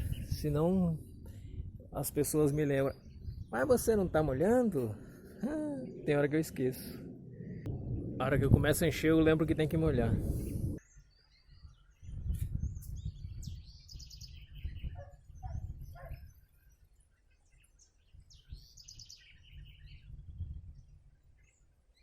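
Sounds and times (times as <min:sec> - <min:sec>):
bird singing: 0:00.0 - 0:01.6, 0:02.2 - 0:08.2, 0:10.5 - 0:22.0
low rumble: 0:00.0 - 0:10.8.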